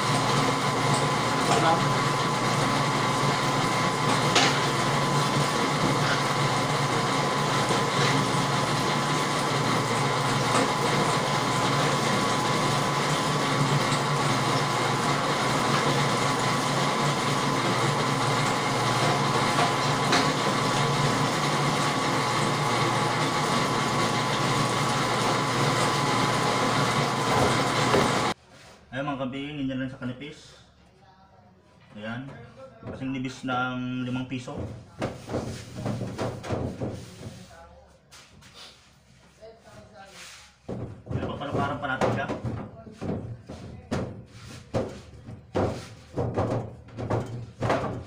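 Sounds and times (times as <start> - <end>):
electric dough roller humming: 0.0 - 28.4, 40.7 - 48.0.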